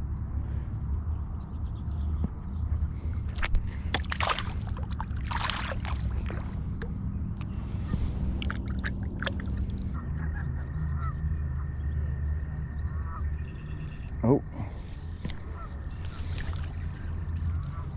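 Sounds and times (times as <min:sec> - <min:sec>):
steady low rumble: 0:00.0 - 0:17.9
water splashing and sloshing: 0:02.9 - 0:10.0, 0:14.0 - 0:17.9
geese calling: 0:09.9 - 0:11.7, 0:12.8 - 0:17.9.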